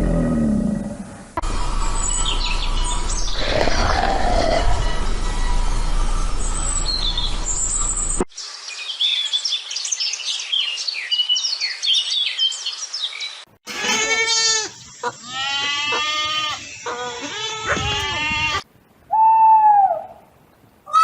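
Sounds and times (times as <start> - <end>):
low rumble: 1.4 - 8.2
goat bleating: 13.7 - 18.6.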